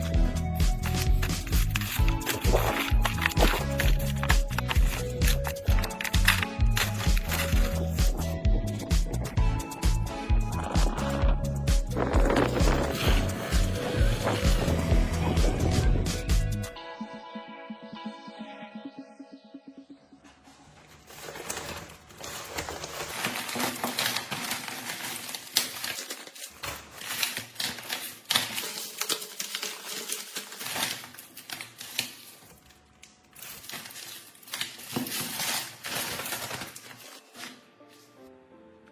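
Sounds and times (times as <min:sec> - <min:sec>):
rapid clicking of small hard objects: 0:00.7 - 0:08.1, 0:21.2 - 0:32.6.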